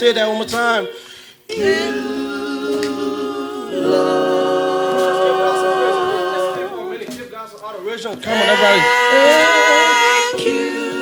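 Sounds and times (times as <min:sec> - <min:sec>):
group singing long notes: 0:01.5 - 0:07.3, 0:08.2 - 0:11.0.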